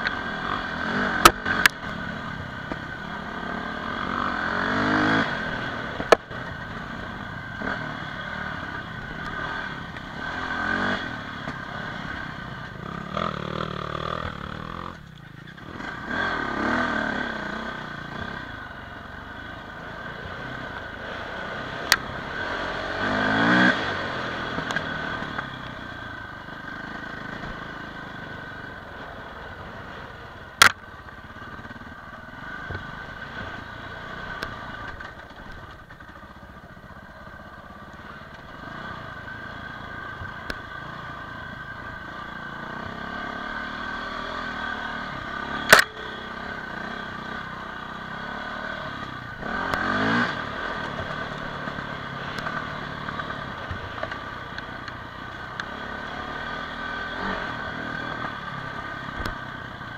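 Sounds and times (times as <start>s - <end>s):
dirt bike engine revving: 0.0s - 19.0s, 19.7s - 25.6s, 40.8s - 54.5s, 55.4s - 59.9s.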